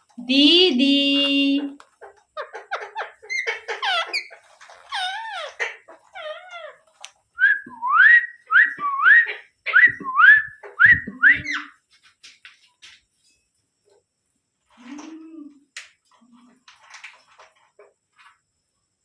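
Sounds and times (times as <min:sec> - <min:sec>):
parrot chirping and whistling: 0:07.4 - 0:11.8.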